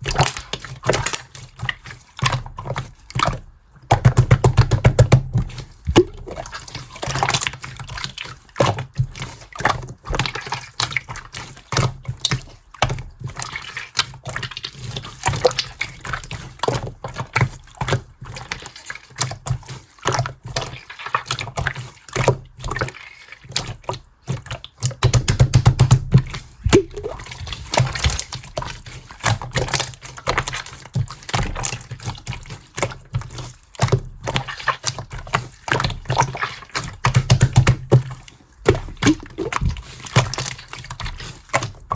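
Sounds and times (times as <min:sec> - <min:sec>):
slime squished by hand: 0:04.0 - 0:08.8, 0:19.3 - 0:41.9.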